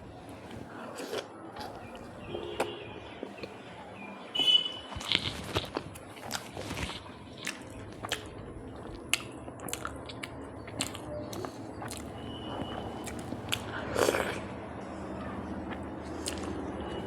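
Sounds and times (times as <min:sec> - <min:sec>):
chewing and biting: 0:04.8 - 0:14.5, 0:15.1 - 0:17.0.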